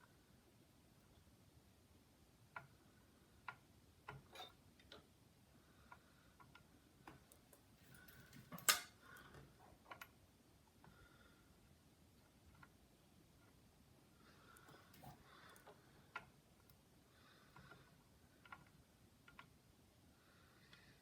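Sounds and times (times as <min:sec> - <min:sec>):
tools clicking and tapping: 0:06.4 - 0:10.1.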